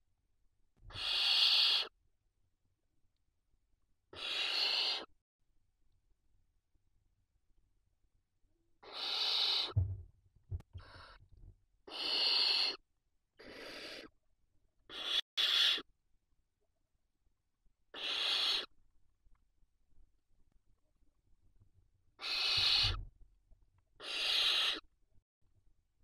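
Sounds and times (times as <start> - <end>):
barn owl chicks hissing: 0.9 - 2.0, 4.1 - 5.1, 8.8 - 9.8, 10.8 - 11.2, 11.8 - 12.8, 13.4 - 14.2, 14.9 - 15.9, 17.9 - 18.7, 22.2 - 23.0, 24.0 - 24.9
thumps in nest box: 9.8 - 10.6.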